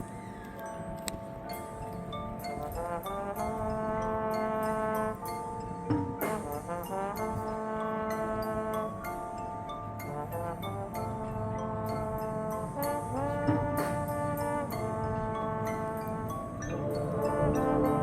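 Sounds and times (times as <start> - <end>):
light percussion ticks: 0.0 - 18.0
brass section playing chords: 2.7 - 5.5, 6.2 - 9.2, 10.0 - 18.0.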